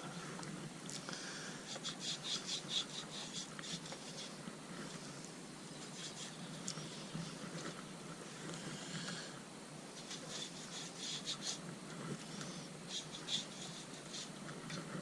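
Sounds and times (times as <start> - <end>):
rubbing strokes on rubber: 1.7 - 8.4, 9.9 - 15.0.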